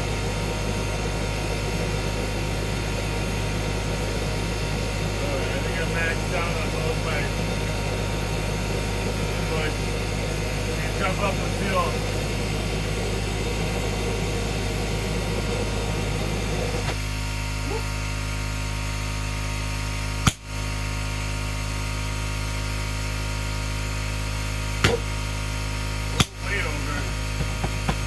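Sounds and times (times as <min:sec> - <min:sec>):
air compressor humming: 0:00.0 - 0:28.0
sharp pops: 0:20.3 - 0:20.5, 0:24.8 - 0:25.2, 0:26.2 - 0:26.6.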